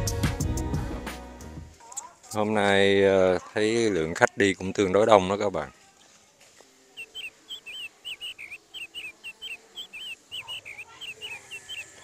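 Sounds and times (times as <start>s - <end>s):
bird whistling song: 7.0s - 12.0s.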